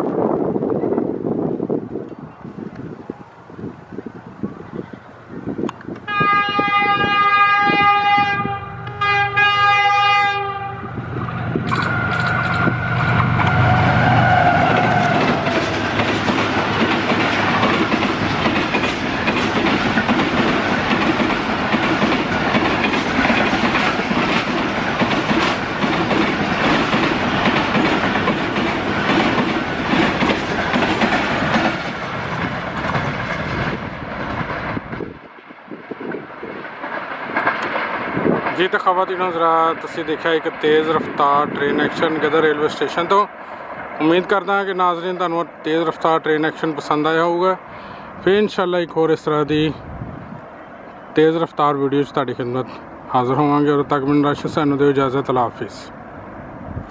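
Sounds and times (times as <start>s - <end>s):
train wheels roaring: 0.0s - 56.9s
locomotive multi-note horn: 6.1s - 11.0s, 13.4s - 15.6s
clickety-clack on rails: 11.1s - 47.4s.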